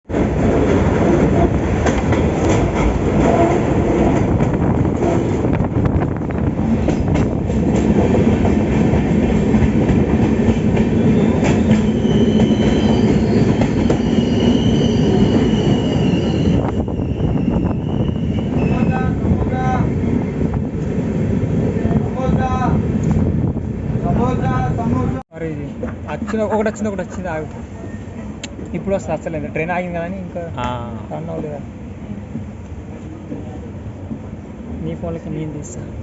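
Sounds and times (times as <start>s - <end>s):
train rumbling on rails: 0.1s - 36.0s
high wheel squeal: 11.0s - 19.0s, 27.7s - 28.3s.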